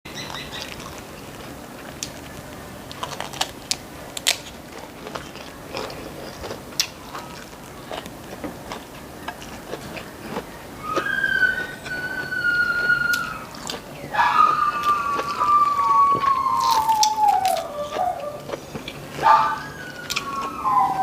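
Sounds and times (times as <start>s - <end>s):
person chewing crunchy food: 0.1s - 21.0s.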